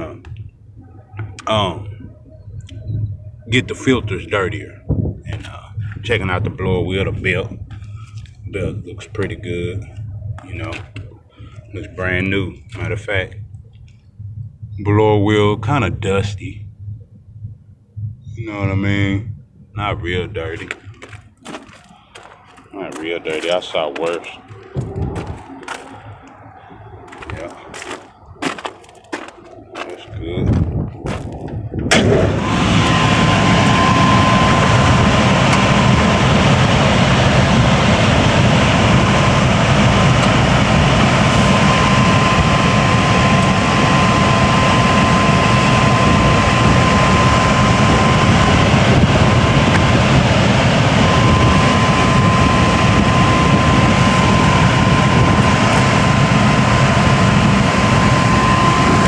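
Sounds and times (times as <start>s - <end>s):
thin steady whine: 0.0s - 59.0s
air-conditioning unit running: 17.6s - 59.0s.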